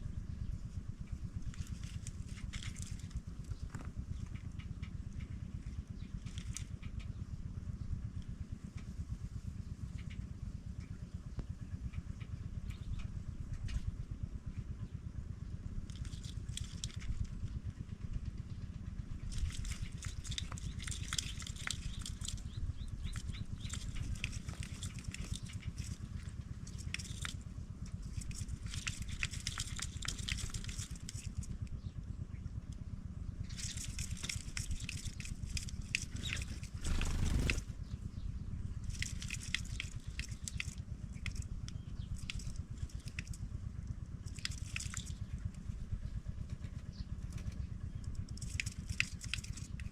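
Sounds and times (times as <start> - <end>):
steady low rumble: 0.0 - 49.9
nestlings chirping: 36.0 - 37.6.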